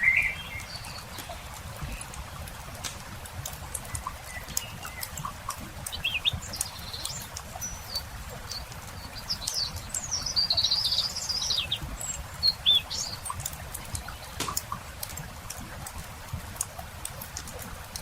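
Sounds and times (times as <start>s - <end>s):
songbirds chirping and whistling: 0.0s - 2.3s, 3.7s - 14.8s
campfire crackling: 0.0s - 18.0s.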